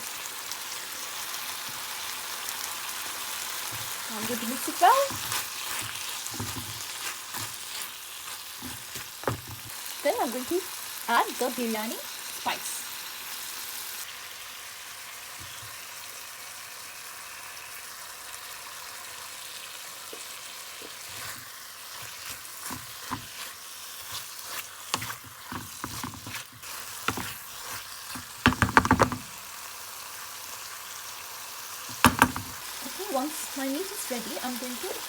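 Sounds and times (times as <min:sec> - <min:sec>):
curry sizzling in a frying pan: 0:00.0 - 0:35.0
spoon scraping and tapping pan: 0:03.7 - 0:07.8, 0:24.5 - 0:27.4, 0:31.9 - 0:32.6.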